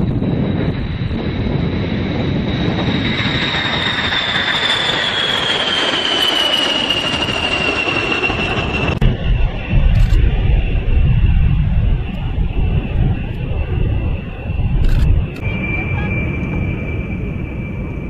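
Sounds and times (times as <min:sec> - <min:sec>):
jet engines roaring with whine: 0:00.0 - 0:18.0.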